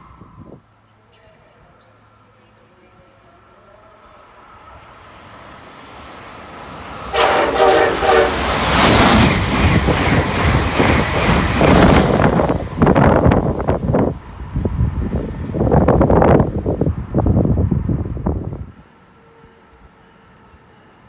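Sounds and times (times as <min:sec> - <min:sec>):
train rumbling past: 0:00.0 - 0:21.0
train horn: 0:07.1 - 0:08.9, 0:19.1 - 0:20.3.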